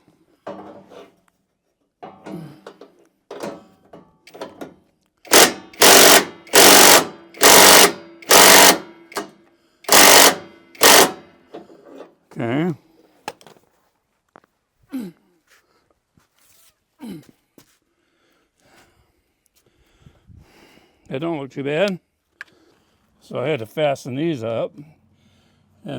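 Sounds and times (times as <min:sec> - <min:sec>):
power drill bursts: 0:05.3 - 0:11.3.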